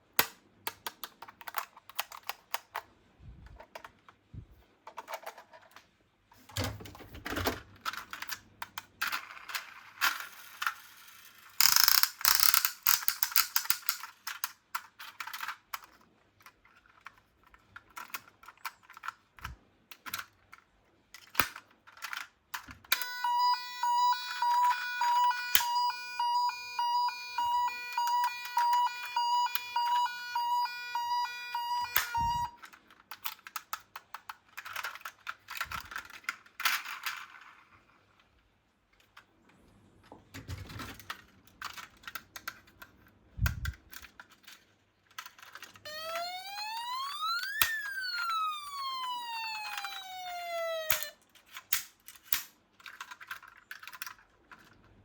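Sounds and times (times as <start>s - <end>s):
toy cars clicking and clattering: 0.2s - 2.9s, 4.8s - 5.9s, 7.5s - 39.4s, 40.4s - 55.0s
toy siren beeping: 22.9s - 32.6s, 45.8s - 51.2s.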